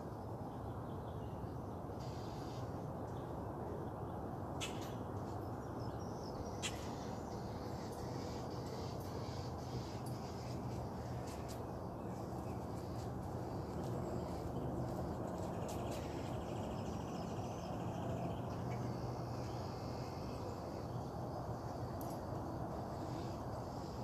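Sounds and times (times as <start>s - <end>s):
steady low hum: 0.0s - 24.0s
birds chirping: 4.6s - 22.2s.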